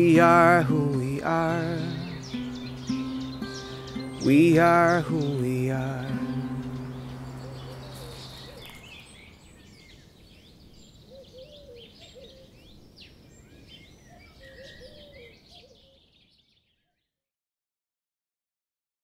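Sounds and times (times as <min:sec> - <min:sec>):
acoustic guitar chord: 0:00.0 - 0:09.0
songbirds chirping and singing: 0:00.0 - 0:17.0.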